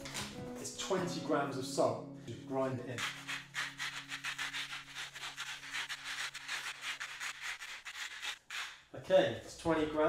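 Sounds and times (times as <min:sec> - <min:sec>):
salt mill grinding: 0:03.0 - 0:08.9.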